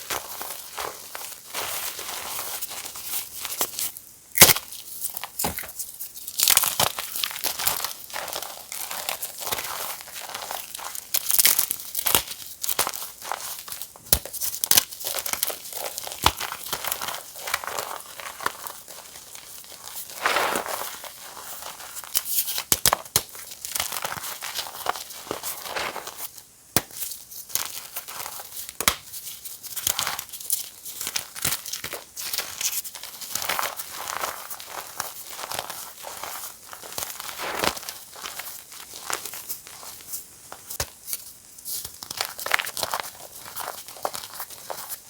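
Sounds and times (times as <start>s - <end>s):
chalk being crushed: 15.1s - 26.9s, 31.8s - 39.9s.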